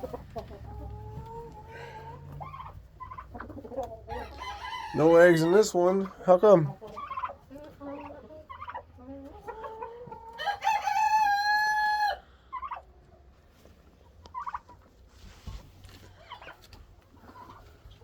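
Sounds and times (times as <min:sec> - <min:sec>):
chicken clucks: 0:00.0 - 0:18.0
rooster crowing: 0:04.1 - 0:05.3, 0:10.4 - 0:12.2.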